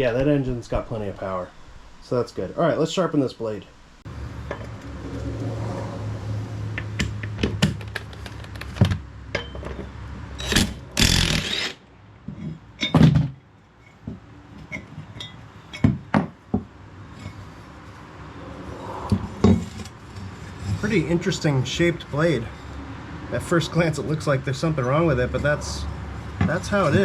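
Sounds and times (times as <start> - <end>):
tools and metal parts clanking: 7.0 - 16.4
loud harsh burst: 10.4 - 11.8.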